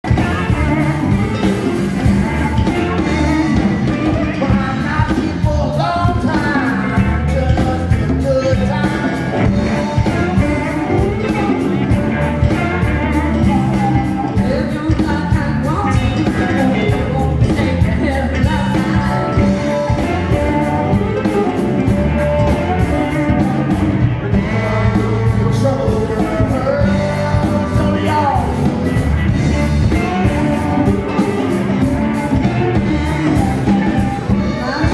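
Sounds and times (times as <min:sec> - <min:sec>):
person singing: 0:00.0 - 0:34.9
rock band playing live: 0:00.0 - 0:34.9
steady drum beat: 0:00.0 - 0:34.9.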